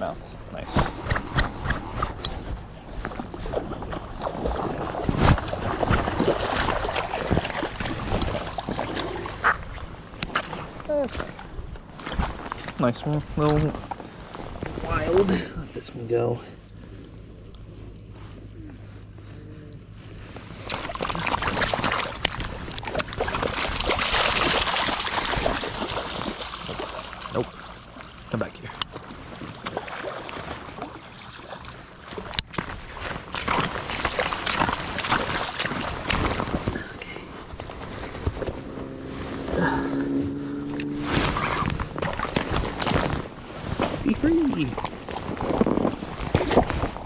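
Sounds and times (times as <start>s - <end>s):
fish splashing in shallow water: 3.1s - 12.3s, 20.4s - 28.3s, 28.9s - 38.6s, 41.2s - 43.5s.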